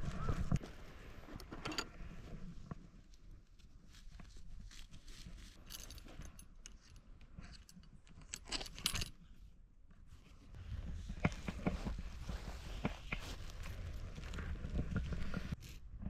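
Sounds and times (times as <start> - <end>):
rustling: 0.0 - 9.1, 10.1 - 15.8
metallic clinks and rattles: 5.4 - 9.2.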